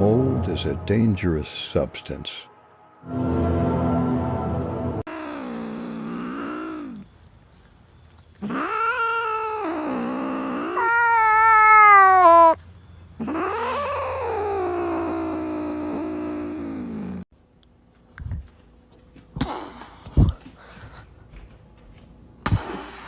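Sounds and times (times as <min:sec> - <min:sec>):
cat yowling: 0:05.1 - 0:07.0, 0:08.4 - 0:12.6, 0:13.2 - 0:17.2.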